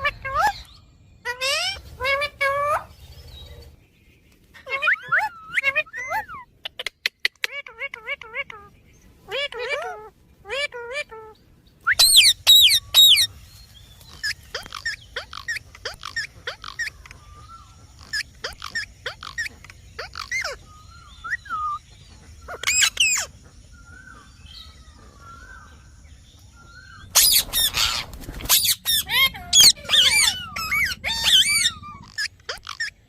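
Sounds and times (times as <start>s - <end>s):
parrot warbled calls: 0.0s - 2.9s, 4.6s - 6.9s, 7.5s - 13.3s, 14.2s - 21.8s, 22.4s - 25.6s, 26.8s - 33.0s
parrot chirping: 4.6s - 13.3s, 14.2s - 21.8s, 22.4s - 23.4s, 26.7s - 33.0s
parrot squawk: 12.0s - 13.3s, 14.2s - 17.2s, 18.0s - 20.6s, 22.5s - 23.3s, 27.1s - 33.0s.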